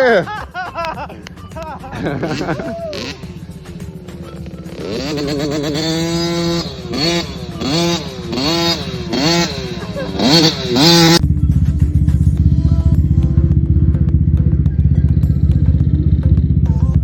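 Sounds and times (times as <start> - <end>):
dirt bike engine revving: 1.9 - 17.0.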